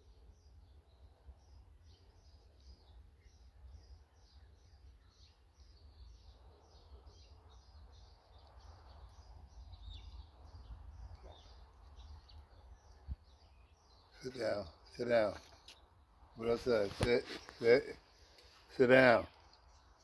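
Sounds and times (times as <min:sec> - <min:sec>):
small bird chirping: 0:00.0 - 0:20.0
low wind rumble: 0:07.3 - 0:14.1.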